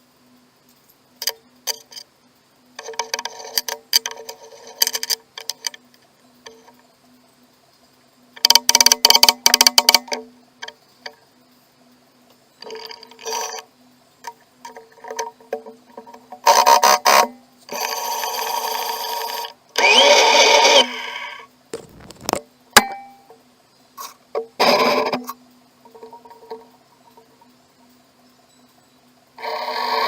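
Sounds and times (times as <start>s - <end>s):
mill cutting metal: 17.7s - 21.4s
motor hum: 17.7s - 22.4s.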